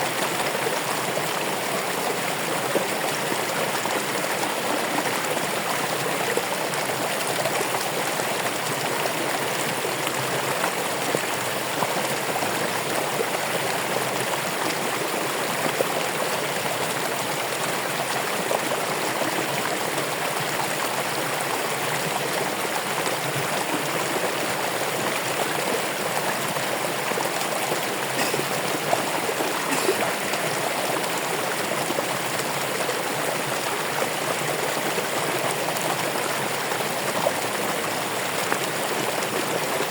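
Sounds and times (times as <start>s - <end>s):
running water splashing: 22.6s - 32.0s.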